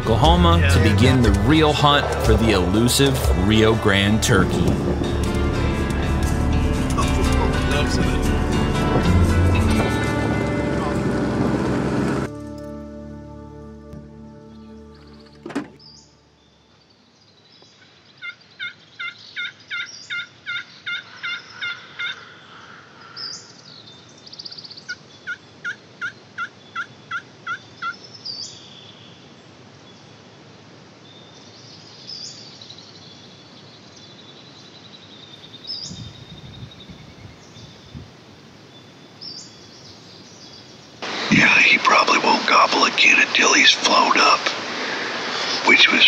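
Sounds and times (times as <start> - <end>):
songbird chirps: 14.5 - 46.0
turkey yelping: 18.2 - 22.4, 25.2 - 28.0.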